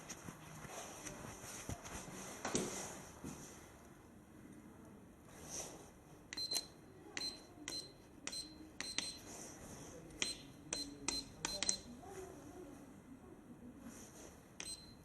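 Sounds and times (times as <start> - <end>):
keypad button clicks: 6.3 - 9.2, 10.2 - 11.9
short high beeps: 14.6 - 15.0.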